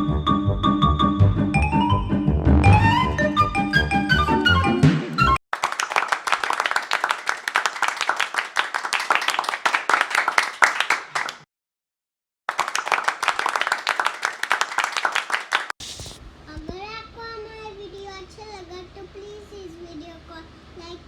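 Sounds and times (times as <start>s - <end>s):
applause: 5.5s - 11.5s, 12.5s - 15.8s.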